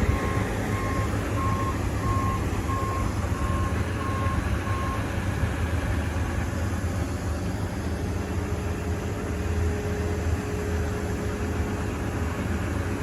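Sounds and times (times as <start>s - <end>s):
reversing alarm beeping: 0.0s - 5.1s
engine rumbling: 0.0s - 13.0s.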